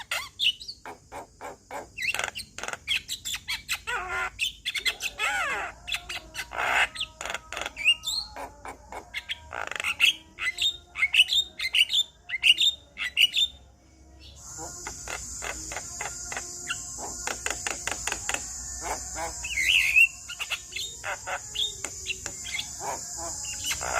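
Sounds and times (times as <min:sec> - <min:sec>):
myna singing: 0:04.9 - 0:23.9.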